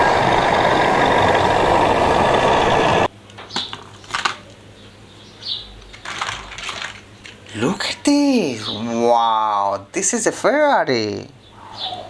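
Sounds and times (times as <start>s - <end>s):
loud mechanical engine noise: 0.0s - 3.1s.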